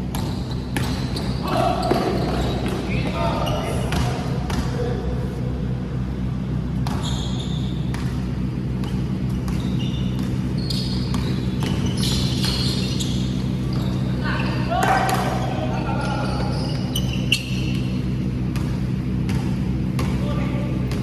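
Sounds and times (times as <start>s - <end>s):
basketball bouncing: 0.0s - 3.2s, 3.8s - 4.8s, 6.8s - 14.0s, 17.5s - 20.3s
steady low hum: 0.0s - 21.0s
short high squeaks: 7.0s - 7.8s, 9.6s - 14.6s, 16.2s - 18.0s.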